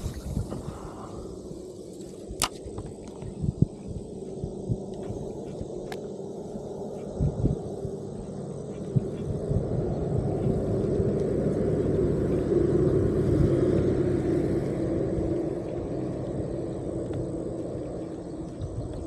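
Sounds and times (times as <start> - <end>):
motor vehicle passing: 5.1 - 19.0.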